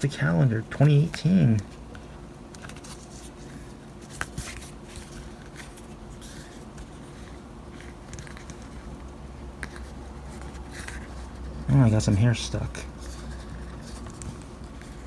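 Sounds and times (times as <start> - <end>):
steady low hum: 0.0 - 15.0
paper rustling: 0.2 - 9.0, 9.6 - 15.0.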